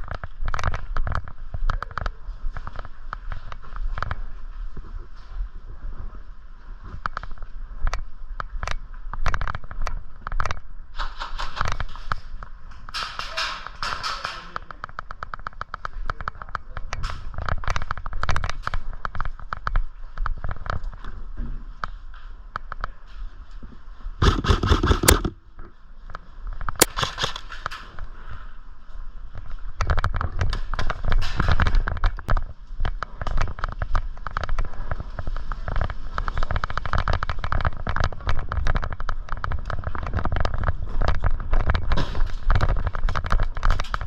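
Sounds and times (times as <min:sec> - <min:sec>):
airsoft gun shots: 0:24.2 - 0:25.4
clatter: 0:24.2 - 0:25.4, 0:29.8 - 0:44.0.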